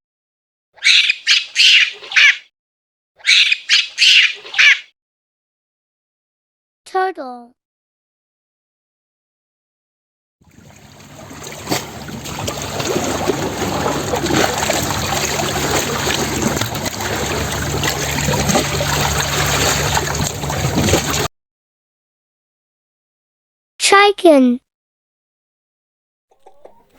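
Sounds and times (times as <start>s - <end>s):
water trickling and sloshing: 10.4s - 21.3s.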